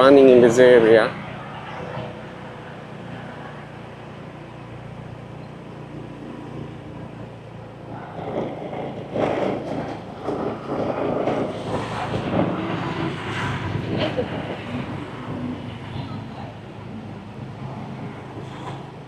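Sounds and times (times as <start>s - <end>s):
road noise: 0.0s - 19.0s
wind on microphone: 7.8s - 19.0s.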